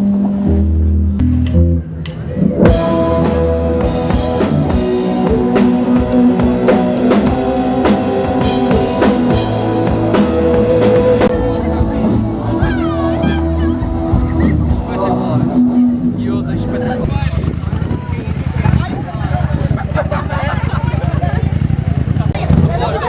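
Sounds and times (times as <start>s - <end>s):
drum kit beat: 1.2s - 15.4s
rock band playing live: 2.5s - 15.9s.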